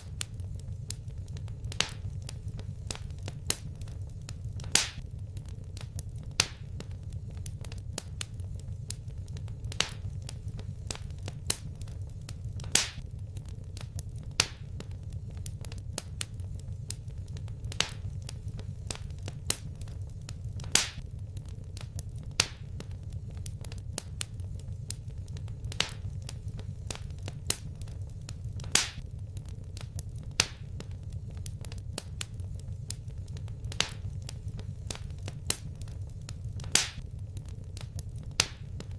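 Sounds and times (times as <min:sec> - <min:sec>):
fire crackling and popping: 0:00.0 - 0:38.9.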